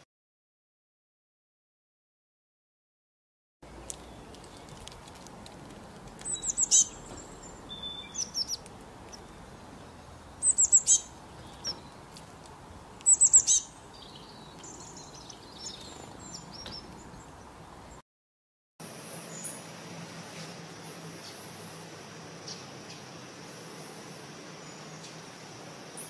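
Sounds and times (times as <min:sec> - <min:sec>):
songbird singing: 0:03.6 - 0:05.1, 0:05.8 - 0:18.0, 0:19.0 - 0:26.0
thin bird chirps: 0:06.2 - 0:12.1, 0:13.0 - 0:17.4.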